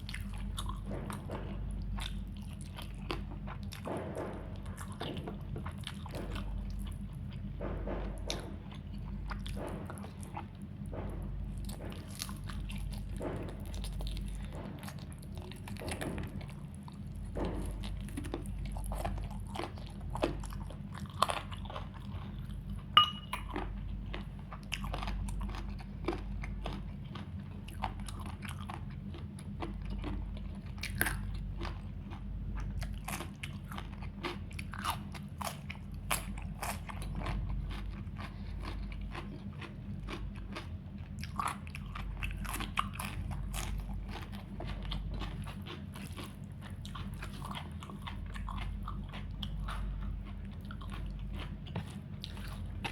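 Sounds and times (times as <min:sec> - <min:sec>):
person chewing crunchy food: 0:00.0 - 0:52.9
steady low hum: 0:00.0 - 0:52.9.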